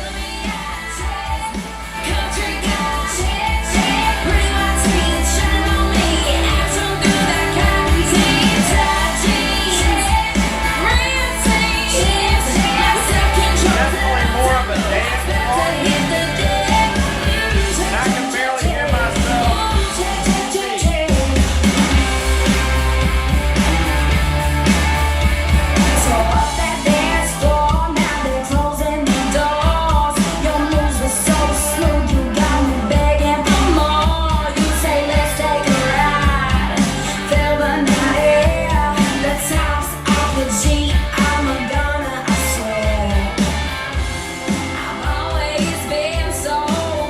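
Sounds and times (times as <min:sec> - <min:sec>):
heavy bass line: 0:00.0 - 0:47.0
woman singing pop song: 0:00.0 - 0:47.0.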